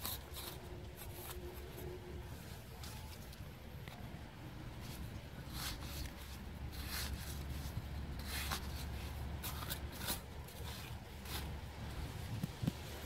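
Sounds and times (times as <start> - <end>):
low steady rumble: 0.0 - 13.0
short rustles and scrapes: 4.8 - 13.0.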